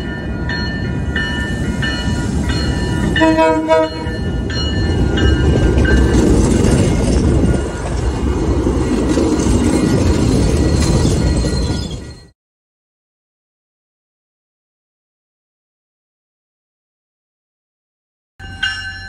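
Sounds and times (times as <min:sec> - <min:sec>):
train rumbling past: 0:00.0 - 0:12.3.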